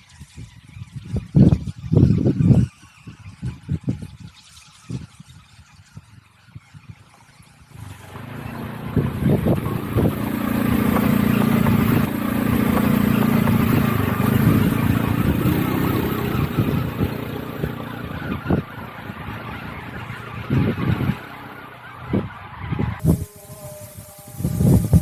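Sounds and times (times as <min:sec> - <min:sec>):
wind and road noise: 0:00.0 - 0:25.0
motorcycle engine cruising: 0:07.7 - 0:23.4.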